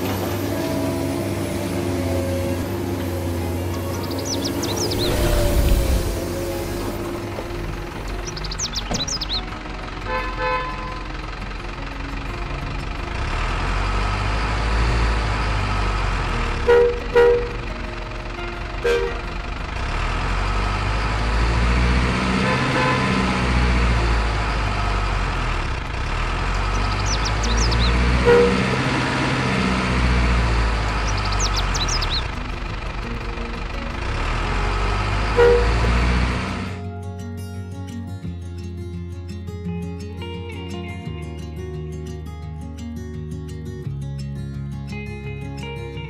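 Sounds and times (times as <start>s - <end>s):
truck engine rumble: 0.0s - 43.7s
short horn toots: 28.2s - 28.8s, 35.3s - 35.9s.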